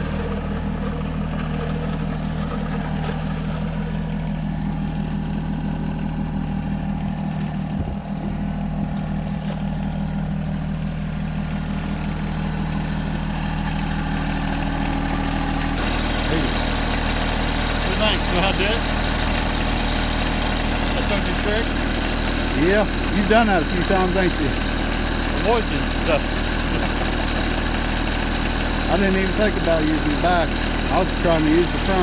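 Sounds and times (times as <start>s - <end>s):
tractor engine idling: 0.0s - 32.0s.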